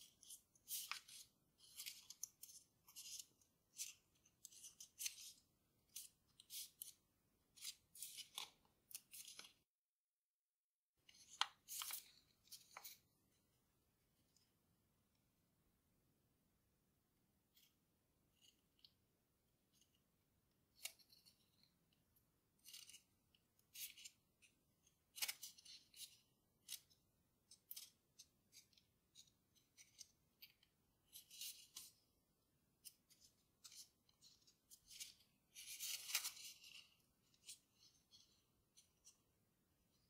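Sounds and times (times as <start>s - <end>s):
paper being folded and creased: 0.0s - 9.6s, 11.1s - 13.0s, 25.1s - 32.0s, 32.8s - 39.2s.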